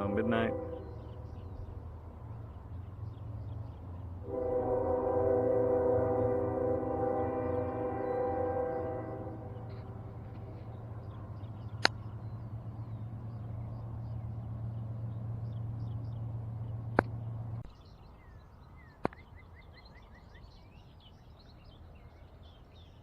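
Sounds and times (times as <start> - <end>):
birds chirping: 0.0 - 5.0, 6.0 - 23.0
distant train rumble: 0.0 - 22.9
sharp clicks: 11.7 - 12.1.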